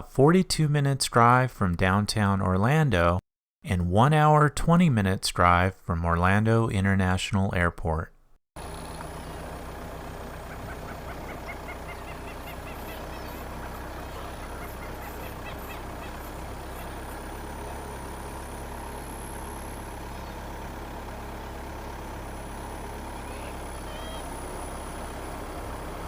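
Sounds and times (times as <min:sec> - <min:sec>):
repeated bird calls: 0:10.3 - 0:20.7, 0:22.5 - 0:26.0.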